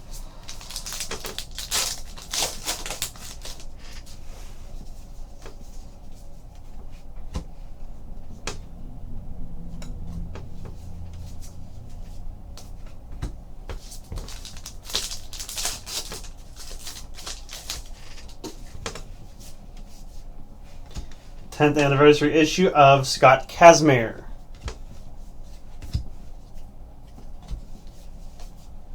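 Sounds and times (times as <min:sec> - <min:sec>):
wrappers and cards rustling: 0:00.0 - 0:04.5, 0:13.7 - 0:18.6.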